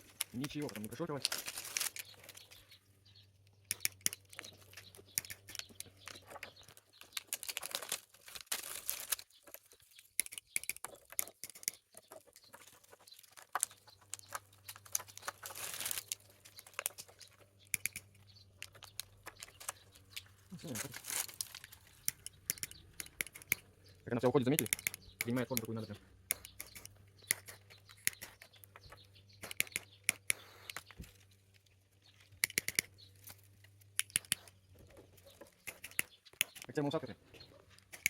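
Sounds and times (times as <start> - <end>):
plastic rustling: 0.0 - 2.6, 5.9 - 10.0, 12.1 - 17.5, 18.7 - 22.1
plastic crinkling and clicking: 0.0 - 2.8, 3.4 - 23.7.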